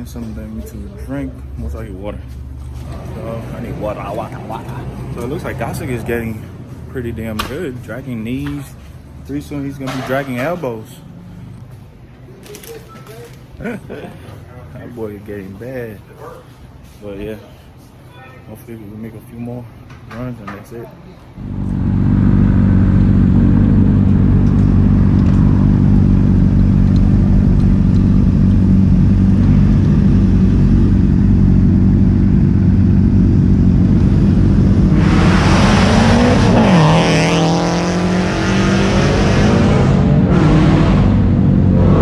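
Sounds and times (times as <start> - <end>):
motorcycle engine drone: 0.0 - 12.1, 21.4 - 42.0
wind rumble: 21.4 - 37.1.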